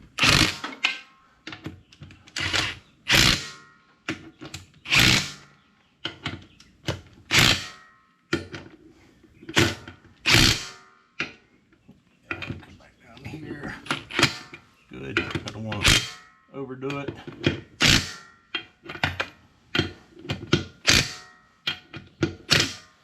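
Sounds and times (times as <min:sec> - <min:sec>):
impact wrench hammering: 0:00.1 - 0:01.1, 0:02.4 - 0:03.7, 0:04.9 - 0:05.5, 0:07.3 - 0:07.9, 0:09.5 - 0:10.8, 0:14.0 - 0:14.6, 0:15.2 - 0:16.4, 0:17.0 - 0:22.9.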